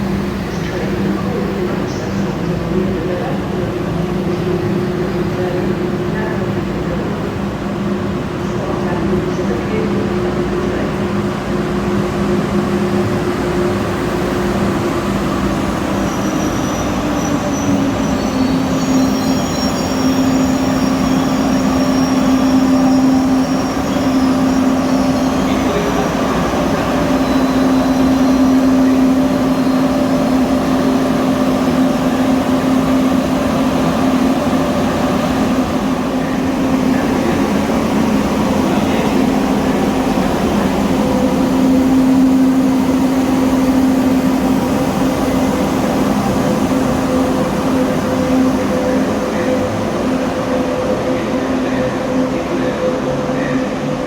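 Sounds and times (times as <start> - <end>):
electric train drive hum: 0.0 - 54.0
faint high-pitched squealing: 16.0 - 35.6.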